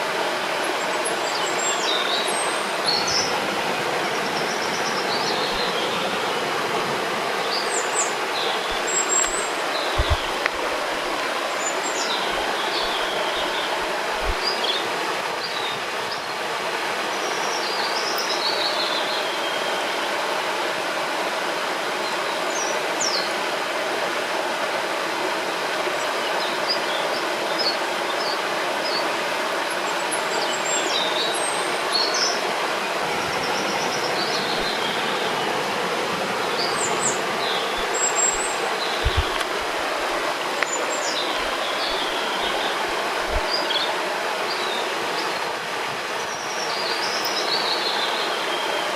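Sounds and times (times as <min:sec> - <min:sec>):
river rushing: 0:00.0 - 0:48.9
small birds chirping: 0:04.0 - 0:06.4, 0:07.4 - 0:16.2, 0:36.4 - 0:45.4.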